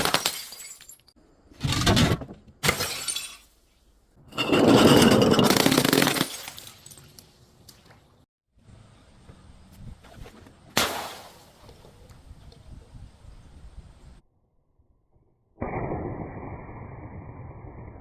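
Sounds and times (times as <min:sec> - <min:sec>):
glass shattering: 0:00.0 - 0:01.2, 0:02.6 - 0:03.5, 0:05.0 - 0:07.2.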